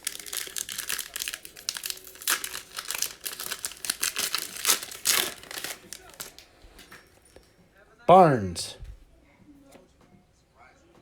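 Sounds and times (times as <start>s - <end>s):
plastic wrapper crinkling and tearing: 0.0s - 6.5s.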